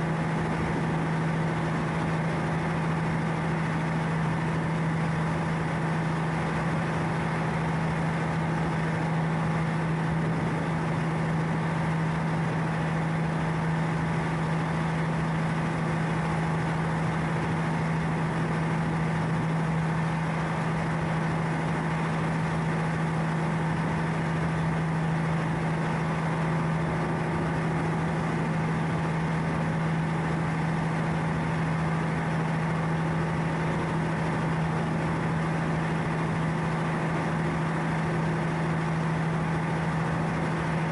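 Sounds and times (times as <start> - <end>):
ship diesel engine humming: 0.0 - 40.9.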